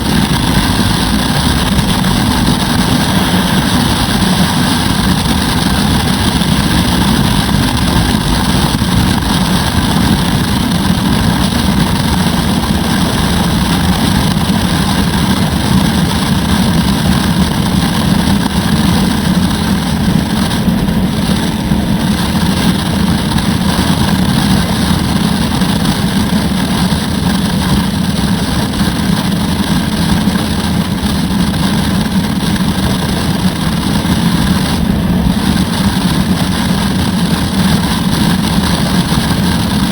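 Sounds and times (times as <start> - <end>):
motorcycle engine running: 0.0 - 39.9
rush of wind noise: 0.0 - 39.9.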